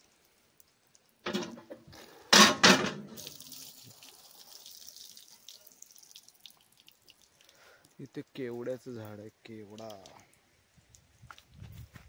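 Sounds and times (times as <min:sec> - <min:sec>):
water running out: 0:00.0 - 0:08.1, 0:08.9 - 0:10.3.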